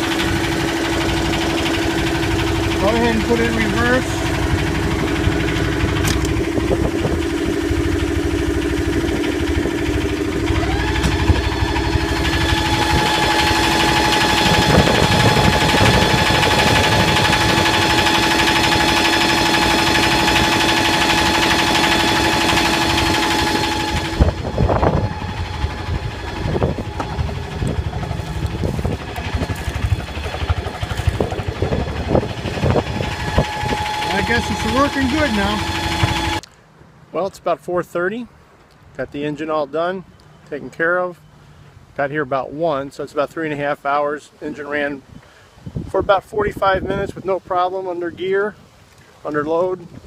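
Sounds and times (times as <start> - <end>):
diesel engine running: 0.0 - 36.5.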